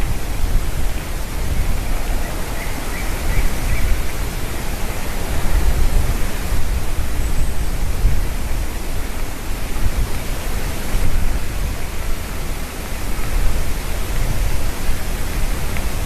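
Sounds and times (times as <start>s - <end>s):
eaglets calling: 2.0s - 4.2s.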